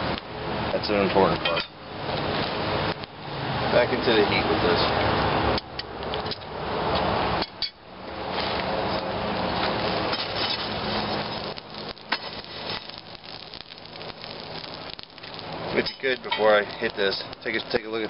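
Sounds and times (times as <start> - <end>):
forge fire rushing: 8.0 - 18.0.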